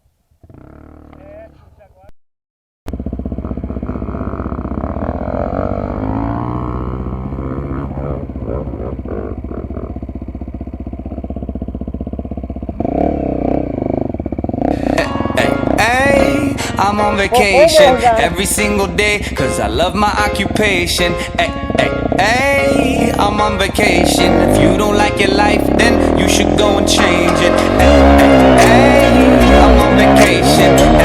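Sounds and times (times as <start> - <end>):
dirt bike engine revving: 0.4 - 1.6, 2.9 - 31.0
music: 14.7 - 31.0.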